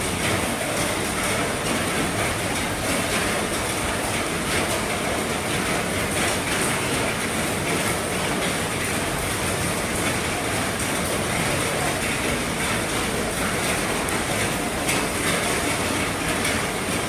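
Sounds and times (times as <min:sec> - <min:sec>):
heavy rain drumming on a roof: 0:00.0 - 0:17.0.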